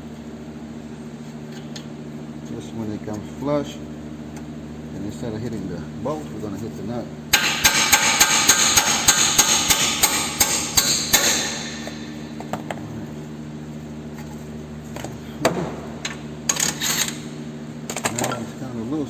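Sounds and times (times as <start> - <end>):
hammer striking metal: 7.3 - 12.4.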